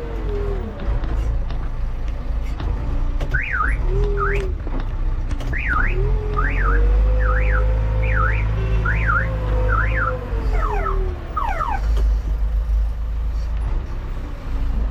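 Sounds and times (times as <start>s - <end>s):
diesel machinery rumbling: 0.0s - 14.9s
warbling electronic alarm: 5.6s - 11.8s.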